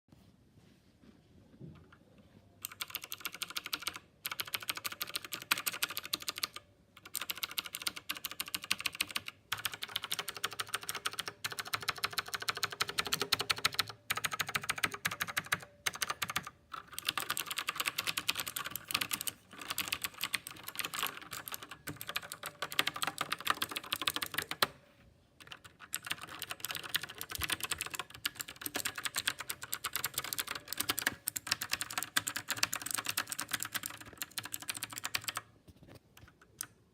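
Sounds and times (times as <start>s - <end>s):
clicky keyboard typing: 2.6s - 24.8s, 25.4s - 36.9s.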